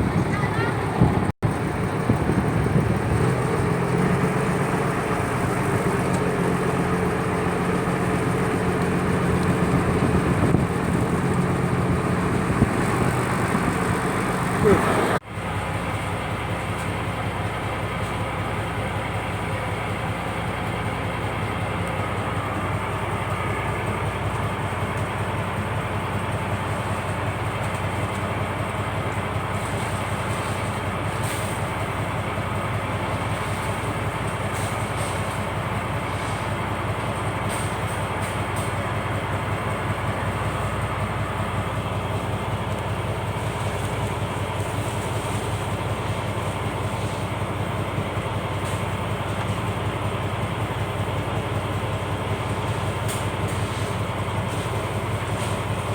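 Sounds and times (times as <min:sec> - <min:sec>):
boat engine running: 0:00.0 - 0:31.0.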